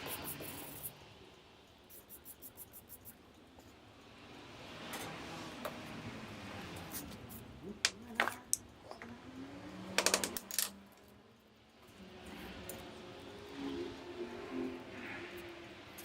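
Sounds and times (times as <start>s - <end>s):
small hard objects clicking: 10.0s - 11.1s.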